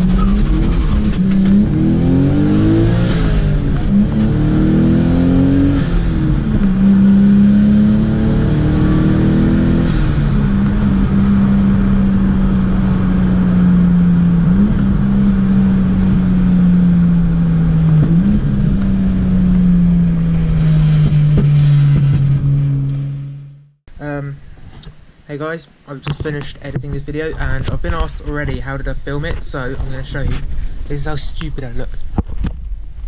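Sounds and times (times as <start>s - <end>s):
car engine running: 0.0s - 23.8s.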